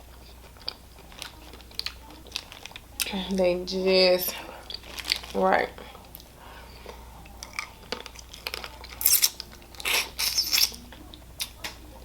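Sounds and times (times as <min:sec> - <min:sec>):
chewing: 0:00.1 - 0:03.1, 0:04.3 - 0:11.8
crawfish shells cracking: 0:00.5 - 0:03.1, 0:04.6 - 0:05.4, 0:07.3 - 0:10.8.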